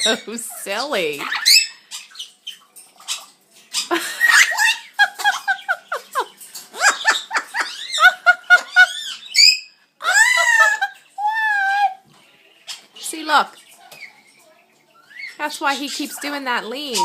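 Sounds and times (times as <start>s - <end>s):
parrot calls and squawks: 0.0s - 17.0s
woman laughing: 3.9s - 9.0s.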